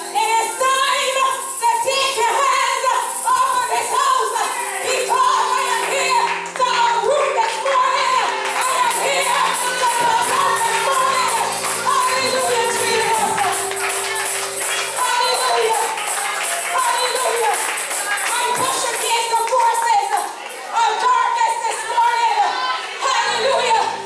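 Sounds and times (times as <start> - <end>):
fast tambourine rhythm: 0.0 - 6.7, 8.4 - 20.5
sustained keyboard chords: 0.0 - 19.5
gospel choir singing: 3.3 - 16.4.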